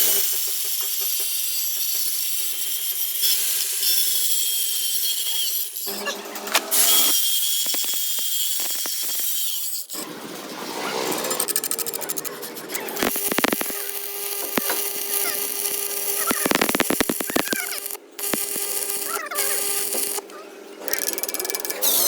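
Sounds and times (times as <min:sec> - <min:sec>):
metalworking hiss and crackle: 0:06.7 - 0:10.0, 0:11.2 - 0:20.2.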